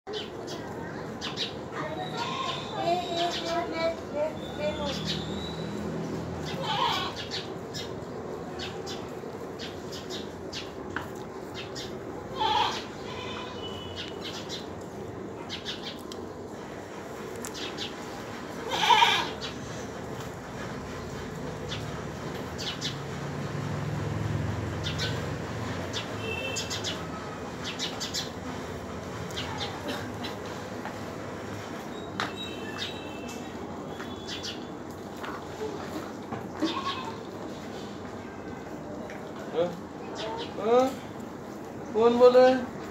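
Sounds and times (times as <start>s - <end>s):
birds chirping: 0.1s - 10.8s, 24.8s - 28.4s, 31.9s - 34.8s.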